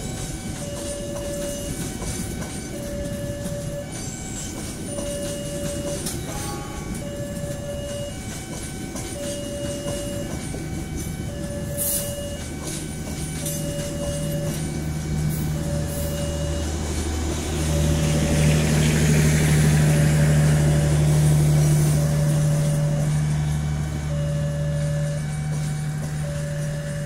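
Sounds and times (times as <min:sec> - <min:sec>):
level crossing alarm tone: 0:00.0 - 0:27.0
train wheels rumbling on rails: 0:00.0 - 0:27.0.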